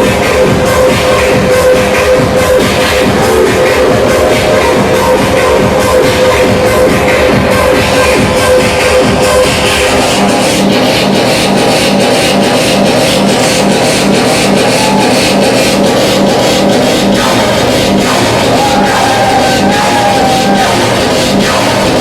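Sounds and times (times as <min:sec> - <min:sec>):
distorted electronic noise music: 0:00.0 - 0:22.0.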